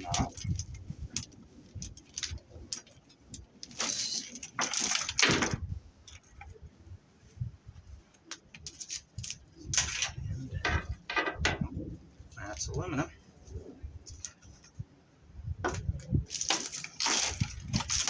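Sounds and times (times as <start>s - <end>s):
metal cable clinking and rattling: 0.0s - 6.5s, 8.4s - 11.7s, 15.8s - 18.0s.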